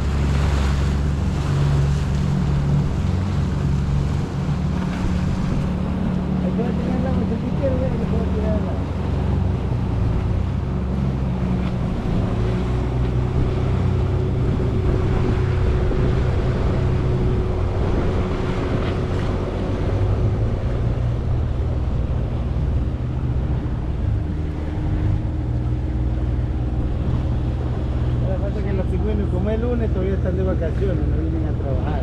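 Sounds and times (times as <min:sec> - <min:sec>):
small boat motor running: 0:00.0 - 0:32.0
water noise: 0:00.0 - 0:32.0
wind noise on microphone: 0:09.2 - 0:28.4.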